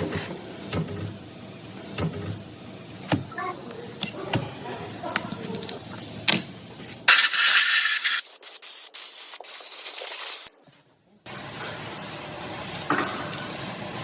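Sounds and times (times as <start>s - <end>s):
metallic tool clicks and knocks: 5.2s - 6.5s.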